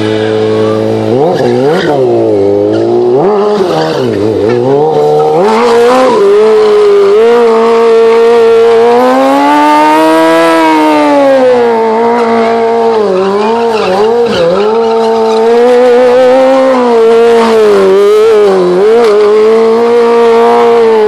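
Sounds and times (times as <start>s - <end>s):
tyre squeal: 0.0s - 6.7s, 12.0s - 17.6s
motorcycle engine revving: 0.0s - 21.0s.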